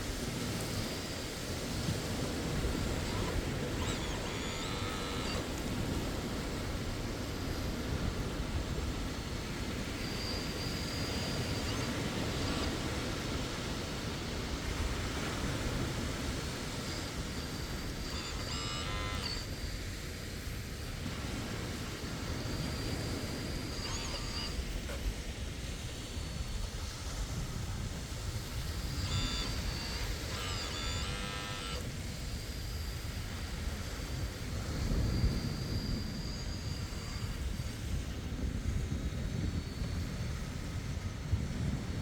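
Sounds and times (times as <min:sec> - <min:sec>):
high-pitched whines: 0:00.0 - 0:41.7
mini excavator engine rumble: 0:00.8 - 0:19.7.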